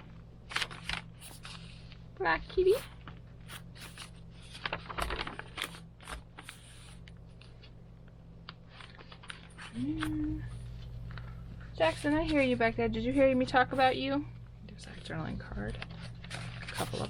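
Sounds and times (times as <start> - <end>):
paper pages rustling: 0.4 - 7.8, 8.5 - 12.6, 15.4 - 17.0.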